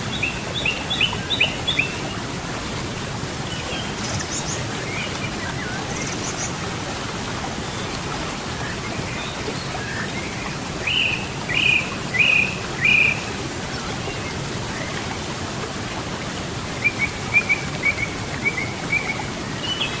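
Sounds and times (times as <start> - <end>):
river water running: 0.0 - 20.0
songbirds calling: 8.6 - 14.9.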